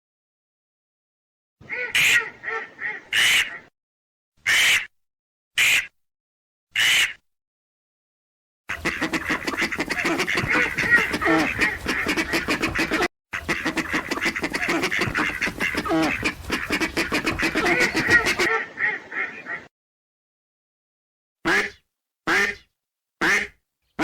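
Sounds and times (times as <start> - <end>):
ducks quacking: 1.6 - 3.7, 8.7 - 19.7, 21.5 - 22.6, 23.2 - 23.5.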